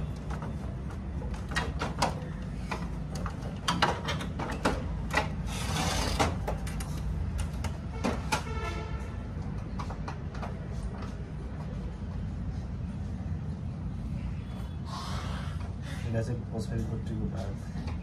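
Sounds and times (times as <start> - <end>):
clicks and knocks of machine parts: 0.1 - 8.6.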